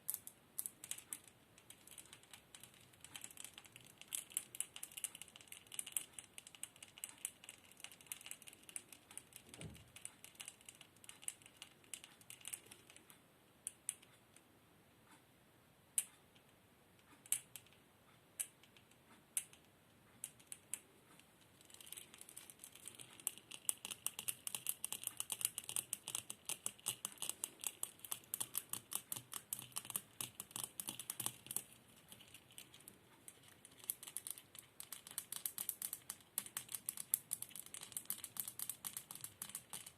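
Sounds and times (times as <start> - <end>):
rapid light tapping clicks: 16.0 - 39.9.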